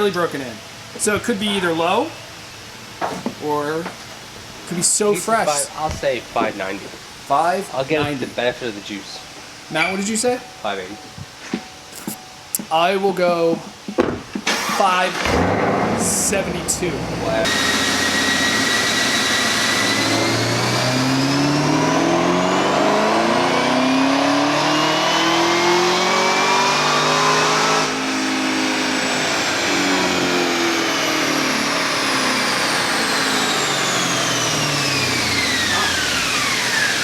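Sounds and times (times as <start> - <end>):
high supercharger whine: 14.4 - 37.0
engine revving at full throttle: 14.5 - 37.0.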